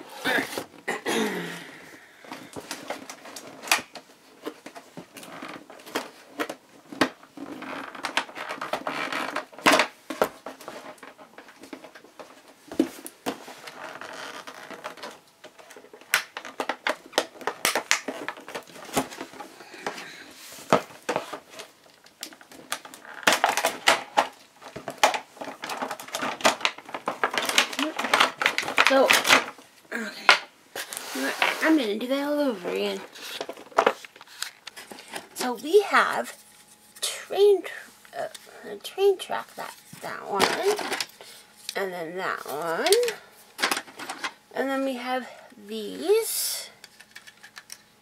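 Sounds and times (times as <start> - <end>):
packaging rustling: 2.0 - 35.5.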